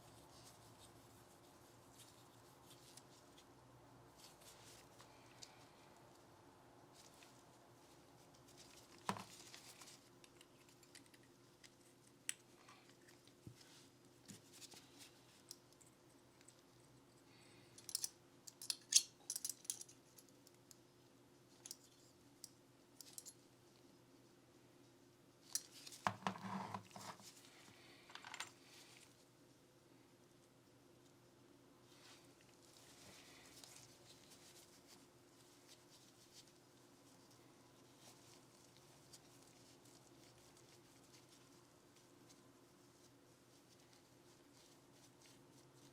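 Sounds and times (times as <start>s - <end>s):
faint steady hum: 0.0s - 45.9s
pistol parts clicking: 17.8s - 19.9s.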